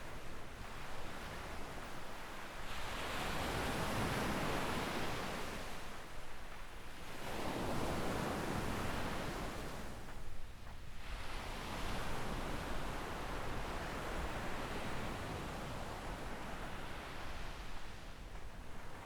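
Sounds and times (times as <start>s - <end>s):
small waves breaking on beach: 0.7s - 10.1s.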